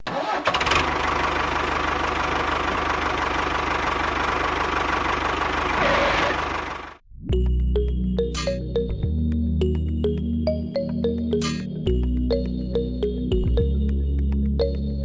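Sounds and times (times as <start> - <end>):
engine running steadily: 0.5 - 7.0.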